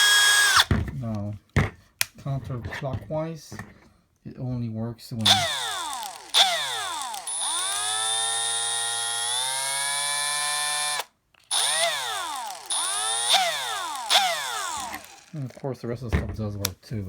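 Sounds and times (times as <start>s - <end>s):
drill motor revving: 0.0s - 0.7s, 5.2s - 15.6s.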